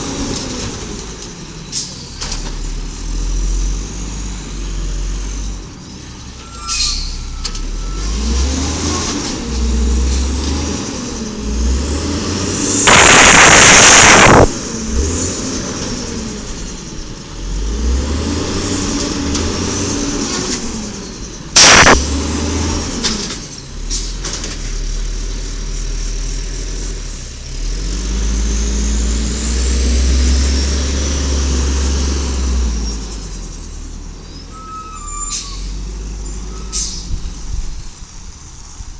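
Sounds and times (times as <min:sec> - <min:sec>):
garbage truck engine revving: 0:07.6 - 0:33.8
sharp air-brake burst: 0:12.4 - 0:14.6, 0:21.6 - 0:22.1, 0:34.4 - 0:38.1
loud air hiss: 0:12.5 - 0:14.5, 0:21.6 - 0:22.0.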